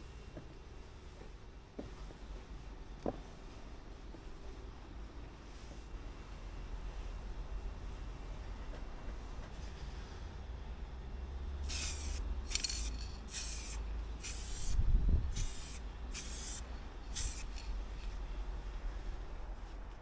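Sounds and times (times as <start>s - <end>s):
spray paint can hissing: 11.6s - 18.2s
steady low rumble: 11.6s - 20.0s.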